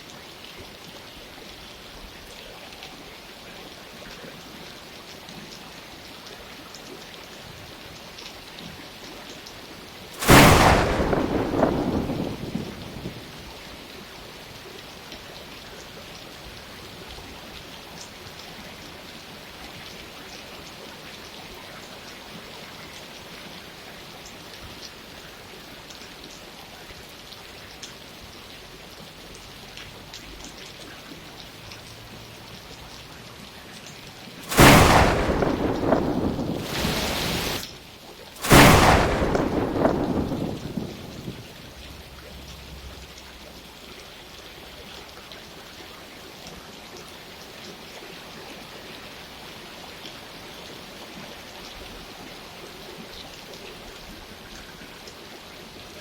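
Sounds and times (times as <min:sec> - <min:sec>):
rain falling: 0:00.0 - 0:56.0
sharp thunderclap: 0:10.2 - 0:13.6, 0:34.4 - 0:37.7, 0:38.4 - 0:42.0.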